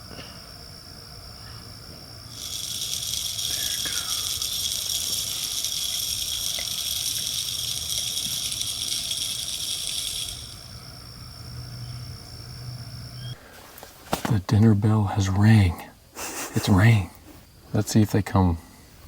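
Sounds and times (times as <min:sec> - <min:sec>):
game feeder scattering corn: 0:02.3 - 0:10.7.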